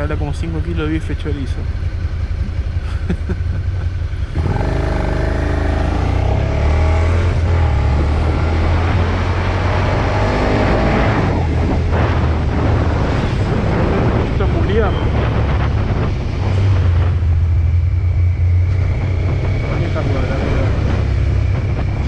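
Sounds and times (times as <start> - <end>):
motorcycle engine revving: 1.5 - 22.0.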